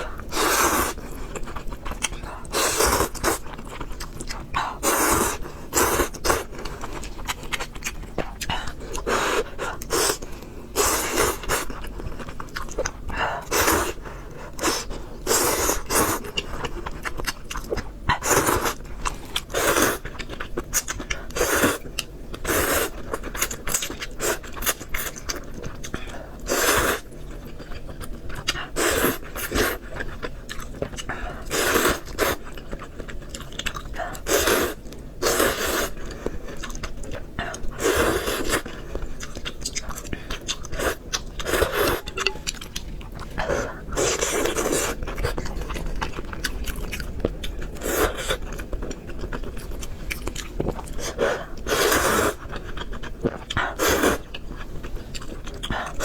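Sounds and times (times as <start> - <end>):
chewing and slurping noodles: 0.0 - 56.0.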